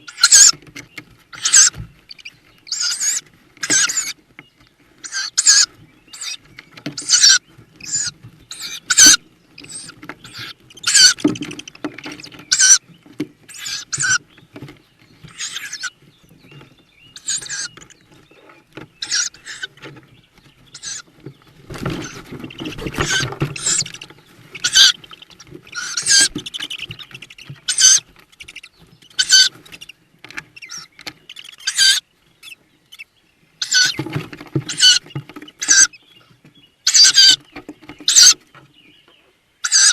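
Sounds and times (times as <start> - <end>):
owl chicks hissing begging calls: 0.0 - 0.6, 1.3 - 14.4, 15.1 - 38.5, 39.6 - 39.9
scuffling in nest box: 13.2 - 31.2.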